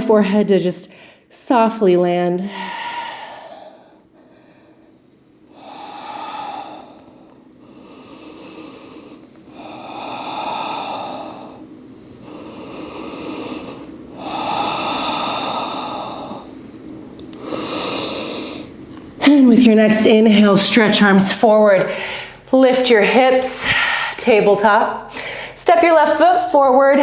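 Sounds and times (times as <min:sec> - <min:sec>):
woman breathing slowly: 0:00.9 - 0:01.3, 0:02.5 - 0:19.2, 0:21.9 - 0:25.6.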